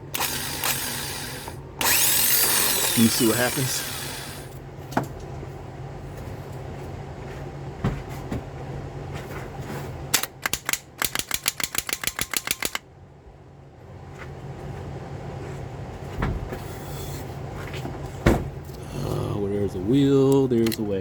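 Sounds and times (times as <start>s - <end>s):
starter solenoid rapid clicking: 0.0s - 4.5s, 10.2s - 12.8s
steady low hum: 0.0s - 10.5s, 12.8s - 21.0s.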